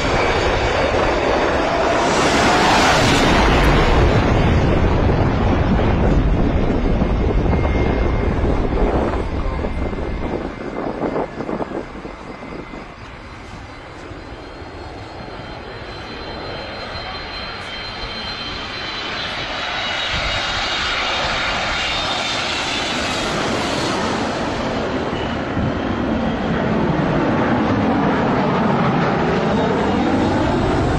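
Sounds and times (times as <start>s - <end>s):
airplane engine low rumble: 0.0s - 30.9s
high-pitched engine whine: 0.0s - 30.9s.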